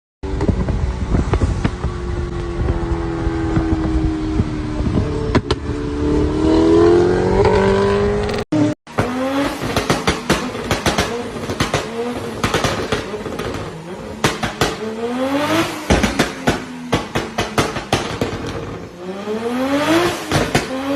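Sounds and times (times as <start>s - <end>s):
exhaust popping and crackling: 0.2s - 5.8s, 7.3s - 20.9s
car engine revving: 0.3s - 20.9s.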